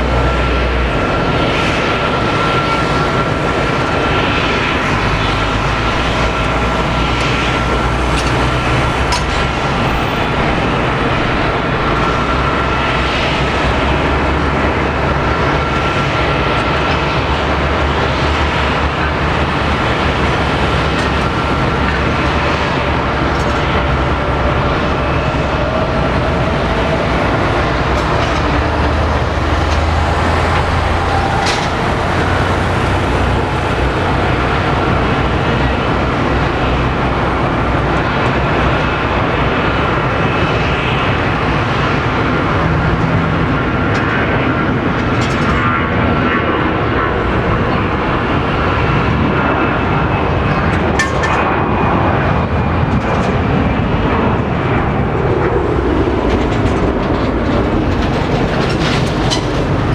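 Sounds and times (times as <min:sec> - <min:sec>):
jet engines whining: 0:00.0 - 0:59.9.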